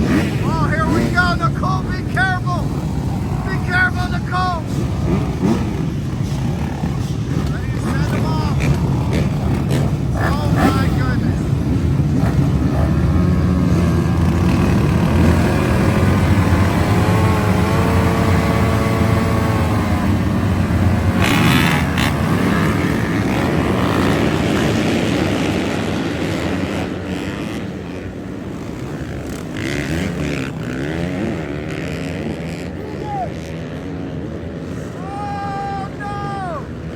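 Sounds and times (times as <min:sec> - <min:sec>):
dirt bike engines revving: 0:00.0 - 0:36.9.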